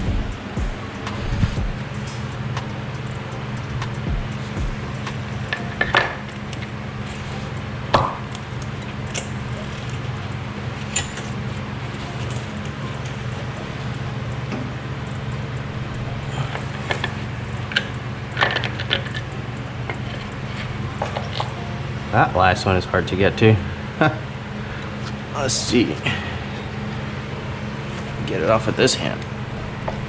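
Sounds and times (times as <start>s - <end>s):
hand tools clicking and clinking: 0.0s - 21.8s
low hum: 0.0s - 30.0s.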